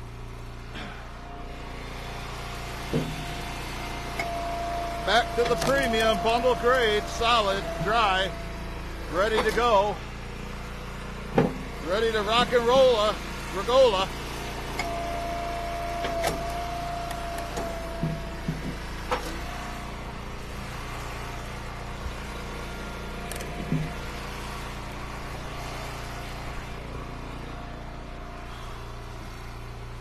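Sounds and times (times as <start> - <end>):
high hydraulic whine: 0.0 - 29.7
log splitter engine running: 0.0 - 30.0
wood knocking and thumping: 2.9 - 3.2, 11.3 - 11.6, 17.4 - 19.3.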